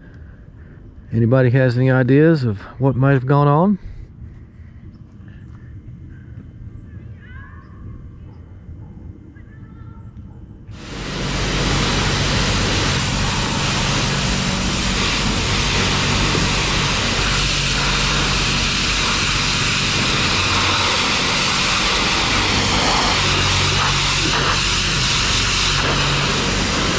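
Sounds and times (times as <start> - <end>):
loud steady rushing noise: 10.7 - 26.9
low even hum: 10.7 - 26.9.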